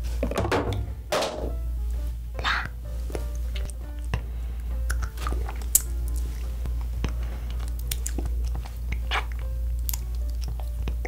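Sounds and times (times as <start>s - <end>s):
steady low hum: 0.0s - 11.0s
biting and chewing wax candy: 3.5s - 11.0s.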